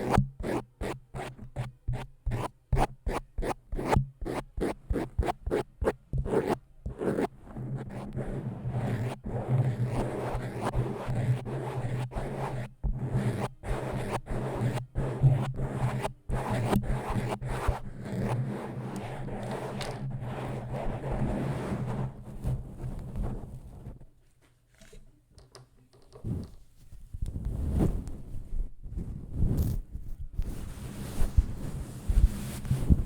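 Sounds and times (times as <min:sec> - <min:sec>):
scratching and scraping: 0:00.0 - 0:24.0.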